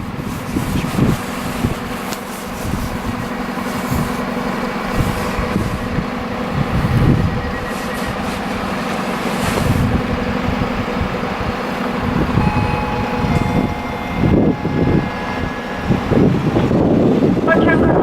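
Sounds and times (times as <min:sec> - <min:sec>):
train rumbling past: 0:00.0 - 0:18.0
wind buffeting microphone: 0:00.0 - 0:18.0
thin whining tones: 0:06.2 - 0:17.5.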